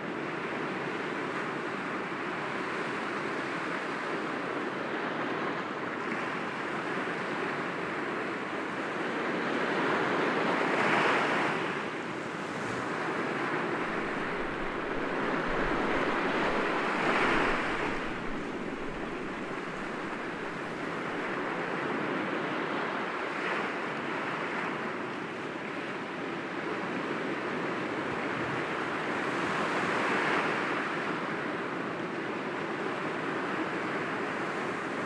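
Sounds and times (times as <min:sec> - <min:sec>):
waves breaking against rocks: 0:12.2 - 0:21.4.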